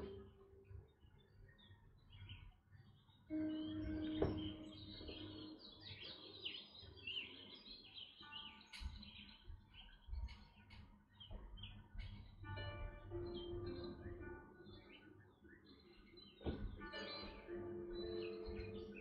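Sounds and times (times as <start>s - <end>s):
small birds twittering: 0.0s - 19.0s.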